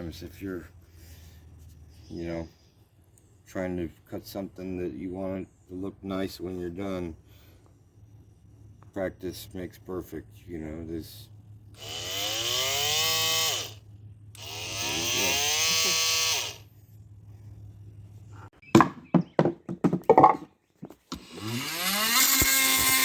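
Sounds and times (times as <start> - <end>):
oscillating multi-tool whining: 11.8 - 13.8, 14.4 - 16.7, 21.1 - 23.0
sharp knocks: 18.8 - 20.5.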